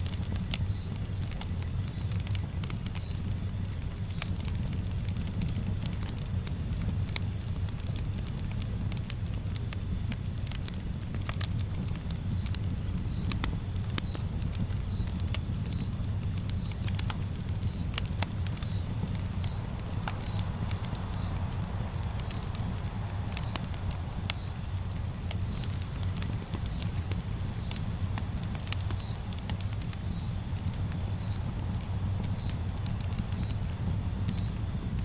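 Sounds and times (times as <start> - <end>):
campfire crackling and popping: 0.0 - 35.0
faint high chirp: 17.6 - 27.8, 34.3 - 34.6.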